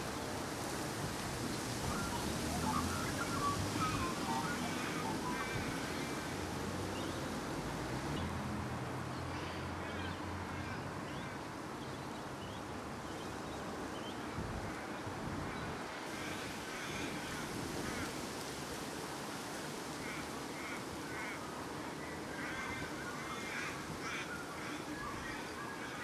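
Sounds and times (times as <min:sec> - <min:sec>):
wind noise on microphone: 0:14.3 - 0:15.9.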